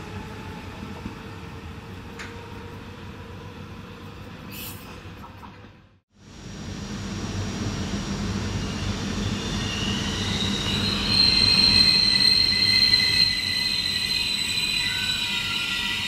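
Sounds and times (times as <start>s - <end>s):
train wheels rumbling on rails: 6.9s - 16.0s
high-pitched brake squeal: 8.5s - 16.0s.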